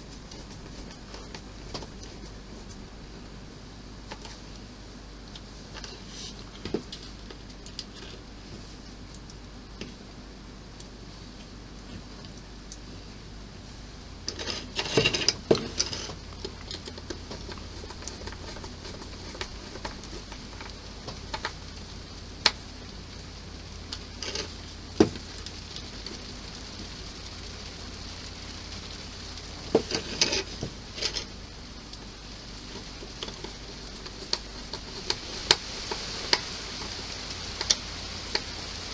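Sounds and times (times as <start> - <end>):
plastic parts clicking and rattling: 14.3 - 21.6.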